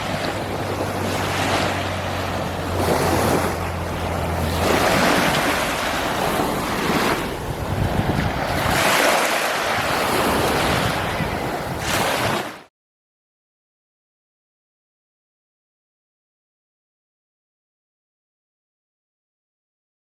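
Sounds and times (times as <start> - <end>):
wind buffeting microphone: 0.0 - 12.6
waves breaking on sand: 0.0 - 12.7.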